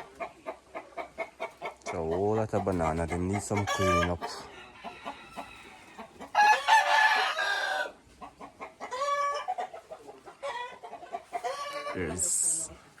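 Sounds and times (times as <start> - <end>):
chicken calls: 0.0 - 13.0
rooster crowing: 4.5 - 8.0.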